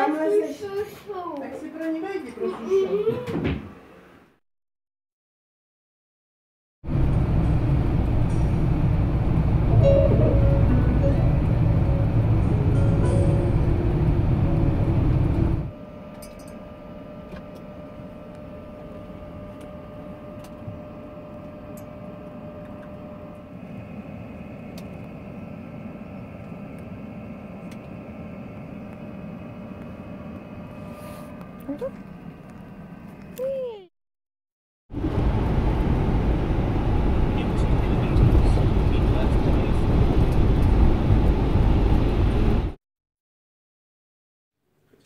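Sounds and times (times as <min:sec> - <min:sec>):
vehicle rumble from inside: 0:06.9 - 0:15.7, 0:35.0 - 0:42.8.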